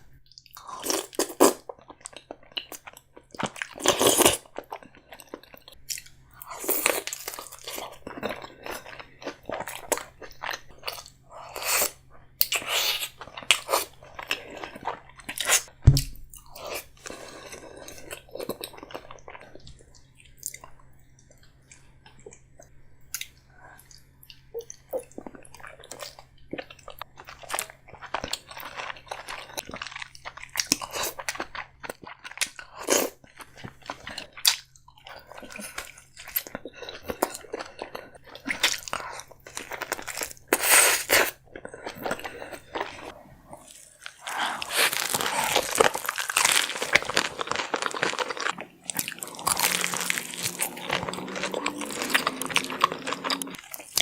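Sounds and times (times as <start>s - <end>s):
deep thump: 15.9s - 16.2s
chewing and wet smacking: 17.8s - 54.0s
crab shell cracking: 44.6s - 51.1s.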